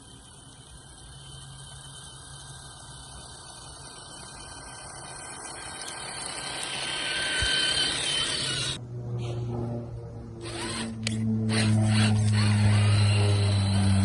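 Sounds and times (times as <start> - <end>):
toy truck electric motor whining: 0.0 - 8.8, 10.4 - 14.0
music with low tones: 8.8 - 14.0.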